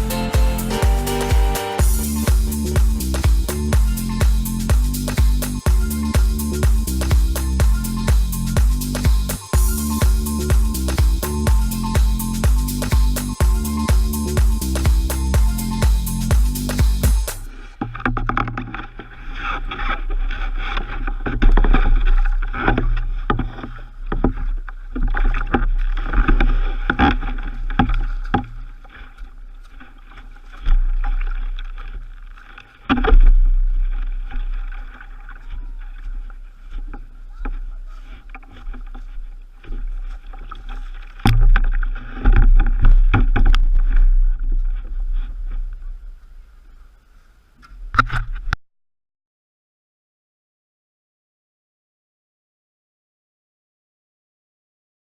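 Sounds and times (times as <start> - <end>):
heavy low rumble: 0.0 - 17.6
water splashing: 0.0 - 19.1
paddle strokes: 0.0 - 48.5.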